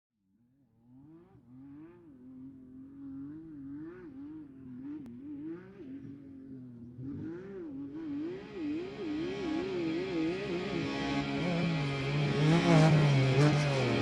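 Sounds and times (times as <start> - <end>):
truck engine revving: 1.0 - 14.0
music: 8.2 - 14.0.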